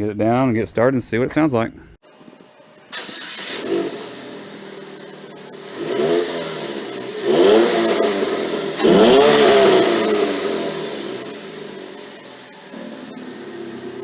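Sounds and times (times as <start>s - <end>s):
car engine idling and revving: 2.0s - 14.0s.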